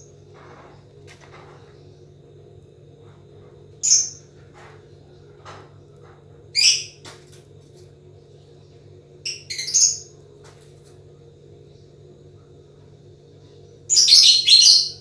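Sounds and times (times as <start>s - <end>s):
steady low hum: 0.0s - 15.0s
lovebird shrill chirps: 13.9s - 15.0s.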